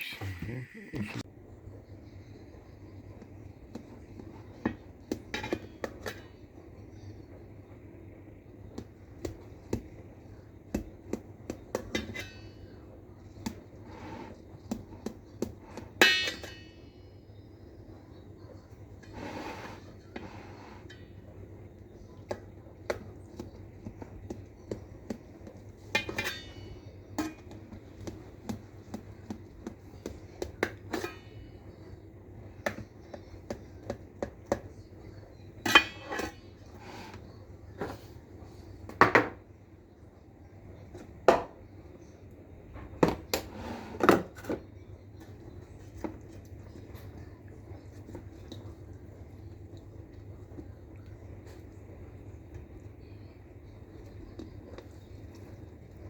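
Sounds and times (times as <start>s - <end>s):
low steady hum: 0.0s - 56.0s
utensils clinking against dishes: 15.8s - 17.1s, 25.8s - 27.7s, 35.6s - 37.1s.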